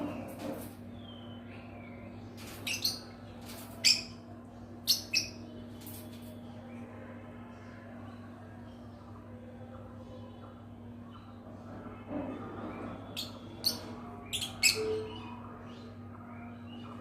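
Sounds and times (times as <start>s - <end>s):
lovebirds chirping: 12.7s - 17.0s.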